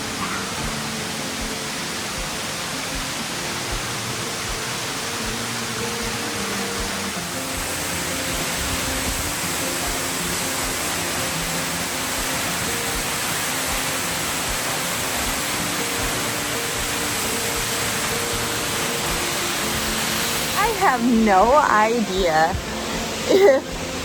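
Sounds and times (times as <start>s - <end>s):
soft background music: 0.0s - 24.0s
waterfall roaring: 0.0s - 24.0s.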